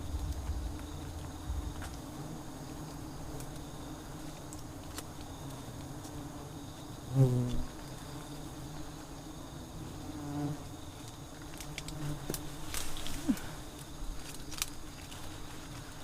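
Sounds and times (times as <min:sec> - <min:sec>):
bees buzzing: 0:00.0 - 0:14.2.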